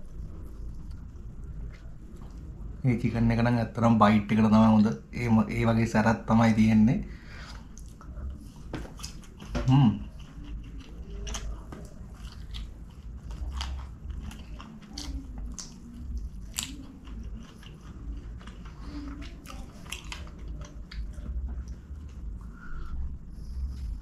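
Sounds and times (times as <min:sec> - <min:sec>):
low steady hum: 0:00.0 - 0:24.0
person biting and chewing: 0:07.4 - 0:24.0.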